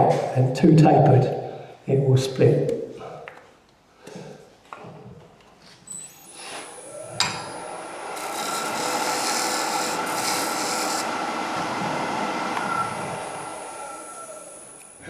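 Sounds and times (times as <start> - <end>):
wood lathe cutting wood: 6.1 - 15.0.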